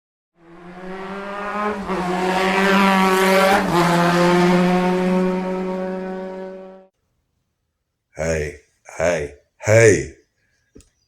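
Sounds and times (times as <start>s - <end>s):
vehicle engine passing by: 0.4s - 6.9s.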